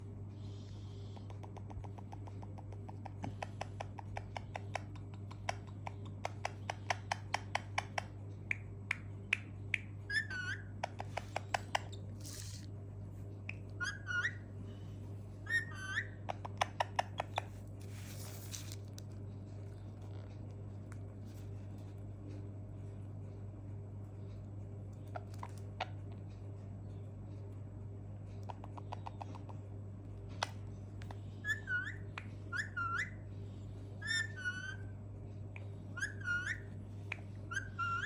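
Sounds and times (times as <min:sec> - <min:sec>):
parrot clicking: 0:01.2 - 0:09.9.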